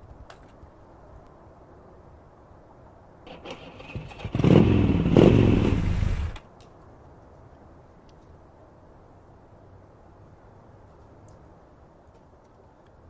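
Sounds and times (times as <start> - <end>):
motorcycle engine revving: 3.3 - 6.4.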